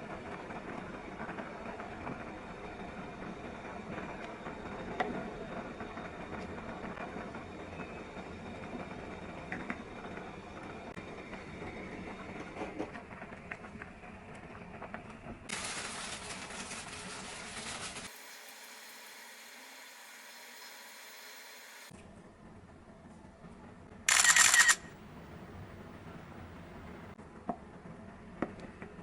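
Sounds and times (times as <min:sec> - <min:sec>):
small clicks: 0:24.1 - 0:24.9.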